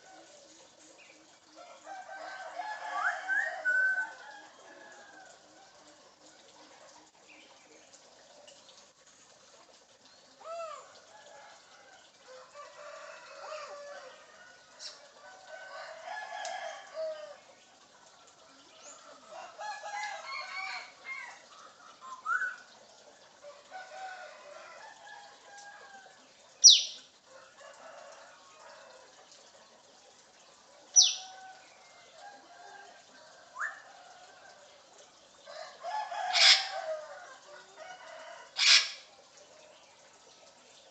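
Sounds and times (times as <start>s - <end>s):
parrot chatter and squawks: 36.2s - 36.9s, 38.5s - 39.1s.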